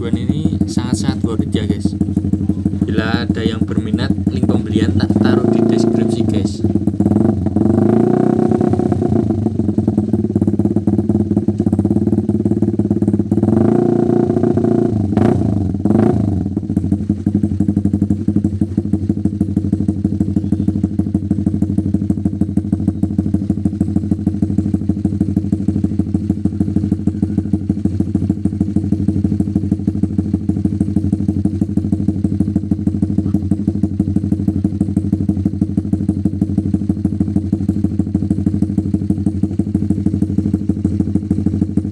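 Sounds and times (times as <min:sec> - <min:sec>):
engine throttle blips: 0:00.0 - 0:12.6, 0:13.2 - 0:41.9
motorcycle engine idling: 0:00.0 - 0:41.9.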